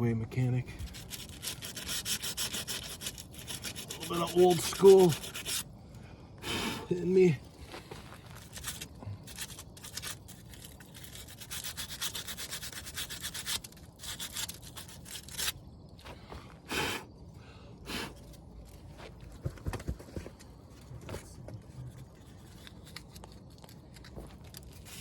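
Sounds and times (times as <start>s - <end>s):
abrasive rasping on metal part: 0.8s - 5.7s, 8.4s - 15.6s.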